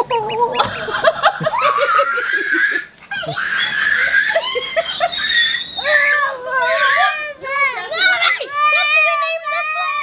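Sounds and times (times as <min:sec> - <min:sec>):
people laughing excitedly: 0:00.0 - 0:05.8.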